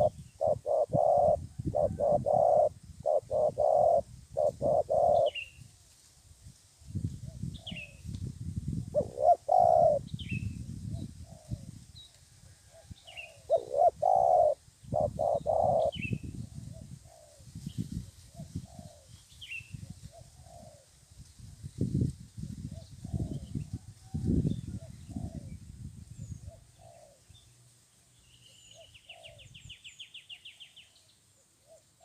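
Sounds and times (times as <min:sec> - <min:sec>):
dove cooing: 0:00.0 - 0:05.4, 0:08.9 - 0:10.1, 0:12.6 - 0:17.4, 0:19.8 - 0:20.9, 0:26.4 - 0:27.2, 0:28.7 - 0:29.5.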